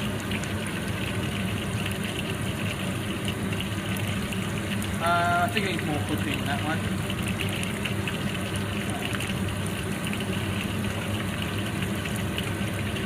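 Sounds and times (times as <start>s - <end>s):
chicken sizzling in oil: 0.0s - 13.0s
constant low hum: 0.0s - 13.0s.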